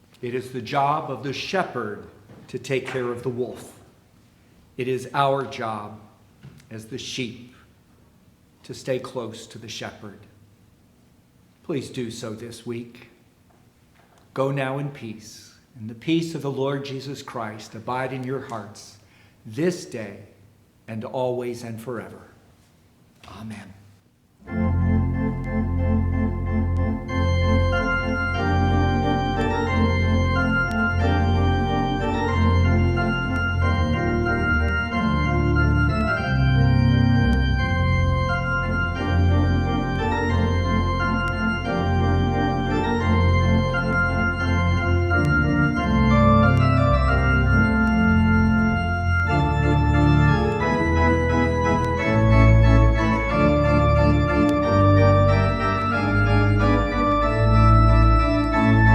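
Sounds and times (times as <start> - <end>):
organ playing sustained chords: 24.4 - 58.9.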